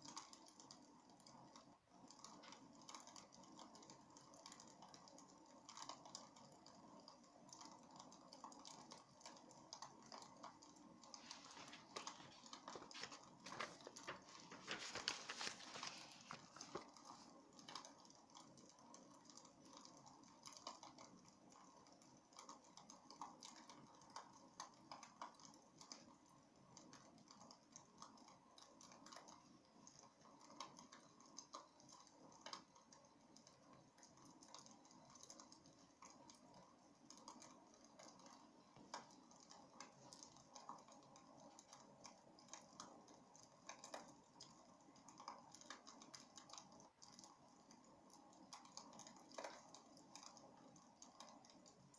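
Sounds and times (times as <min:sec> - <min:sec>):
wood fire crackling: 0:10.0 - 0:17.8.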